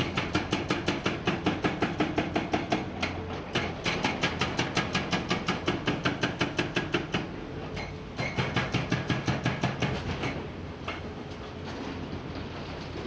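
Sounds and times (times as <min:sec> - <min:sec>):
hydraulic breaker hammer pounding rock: 0:00.0 - 0:07.3, 0:08.2 - 0:10.4.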